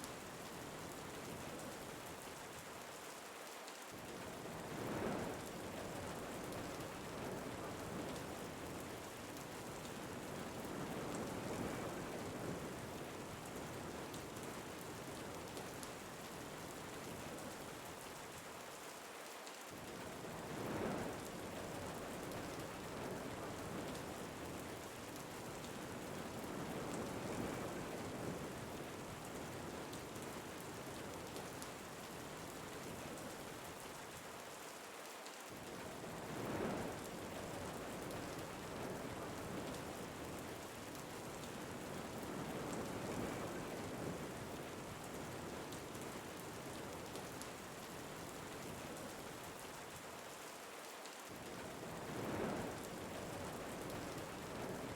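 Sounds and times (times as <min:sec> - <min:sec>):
steady rain falling: 0:00.0 - 0:54.9
wind gusts: 0:19.8 - 0:33.6, 0:35.6 - 0:49.6, 0:51.3 - 0:54.9.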